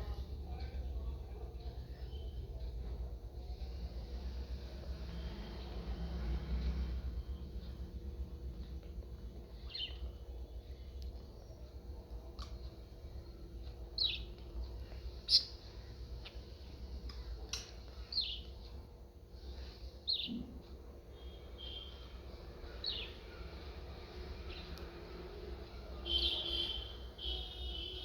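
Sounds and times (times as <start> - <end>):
budgerigar chirping: 14.0 - 14.3, 15.3 - 15.6.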